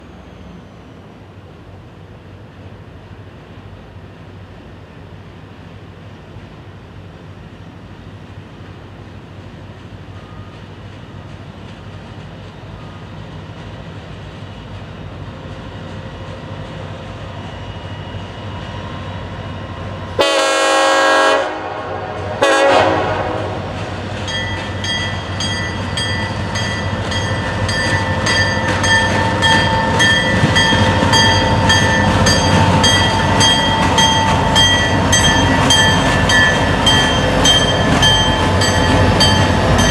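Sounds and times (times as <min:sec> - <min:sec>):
freight train rumble: 0:00.0 - 0:39.9
train horn blast: 0:20.2 - 0:23.9
bell ringing rapidly: 0:24.3 - 0:39.9.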